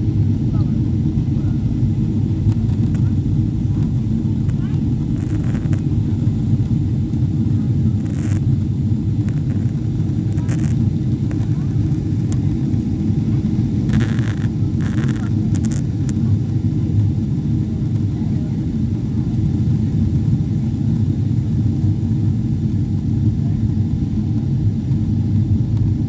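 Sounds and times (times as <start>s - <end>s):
airliner low rumble: 0.0s - 26.0s.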